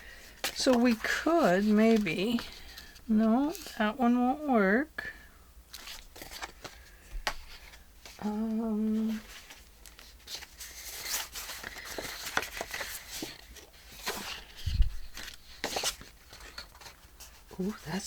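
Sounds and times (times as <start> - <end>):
paper rustling and crinkling: 0.0 - 3.8, 5.7 - 18.0
person humming: 8.2 - 9.3.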